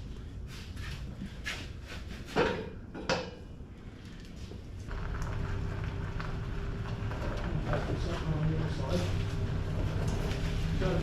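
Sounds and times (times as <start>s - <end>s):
machine hum: 4.7s - 11.0s.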